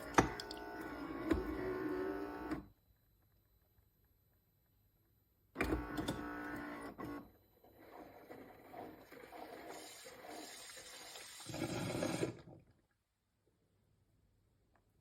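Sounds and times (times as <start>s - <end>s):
coffee machine motor hum: 0.0s - 2.6s.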